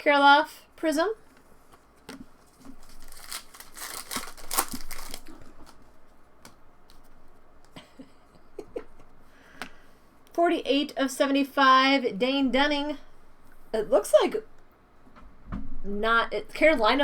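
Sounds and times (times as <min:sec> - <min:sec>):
foil wrapper crinkling and tearing: 0:02.4 - 0:05.9.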